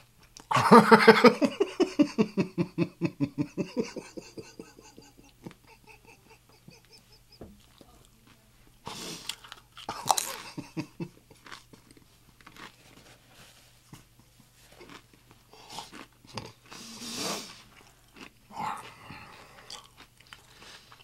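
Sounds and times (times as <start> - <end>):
chip crunching and chewing: 7.6 - 21.0.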